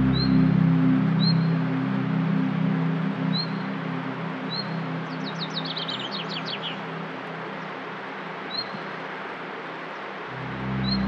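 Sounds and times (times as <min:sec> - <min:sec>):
songbird singing: 0:00.0 - 0:09.0, 0:09.8 - 0:11.0
soft low ambient music: 0:00.0 - 0:11.0.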